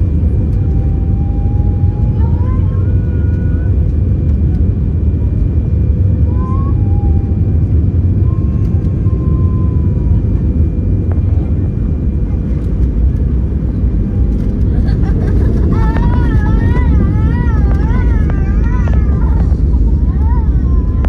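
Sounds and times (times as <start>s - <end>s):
aircraft cabin engine rumble: 0.0s - 21.0s
faint steady whine: 6.2s - 21.0s.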